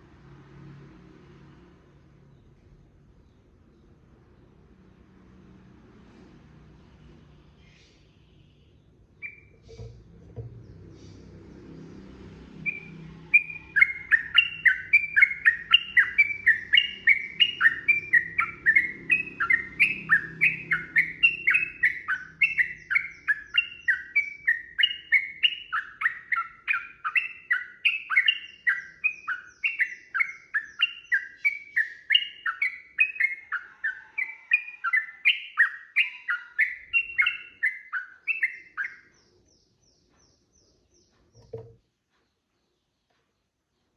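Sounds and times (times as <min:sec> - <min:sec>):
bird singing repeated notes: 0:07.7 - 0:11.3, 0:12.6 - 0:43.9.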